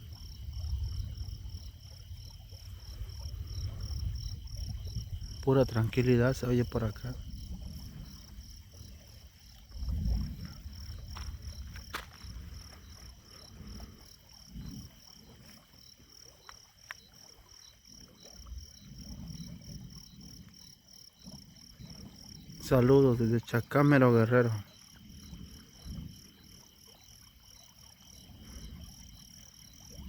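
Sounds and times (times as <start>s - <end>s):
crickets chirping: 0.0s - 30.0s
low rumbling: 6.7s - 15.0s.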